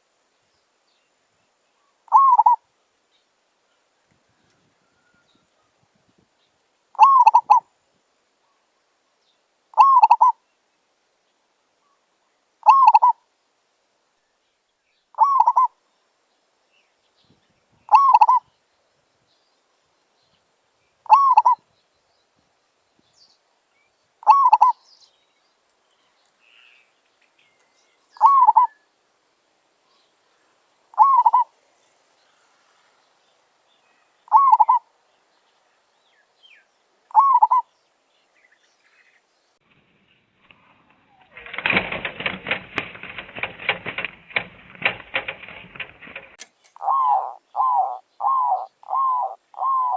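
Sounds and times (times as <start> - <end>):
dove cooing: 2.1 - 2.6, 7.0 - 7.6, 9.8 - 10.4, 12.6 - 13.2, 15.2 - 15.7, 17.9 - 18.4, 21.1 - 21.6, 24.2 - 24.8, 28.2 - 28.7, 31.0 - 31.5, 34.3 - 34.8, 37.1 - 37.6, 41.4 - 49.9.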